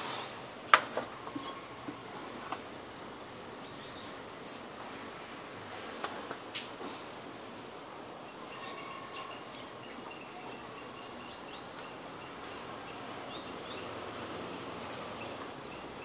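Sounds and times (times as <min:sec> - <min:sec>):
steady background hiss: 0:00.0 - 0:16.0
small birds chirping and whistling: 0:08.3 - 0:16.0.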